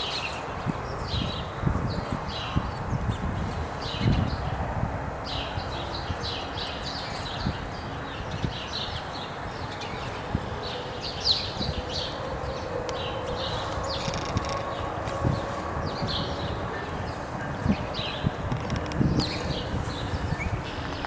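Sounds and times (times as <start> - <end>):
small birds chirping: 5.2 - 21.0
steady low rumble: 10.0 - 21.0.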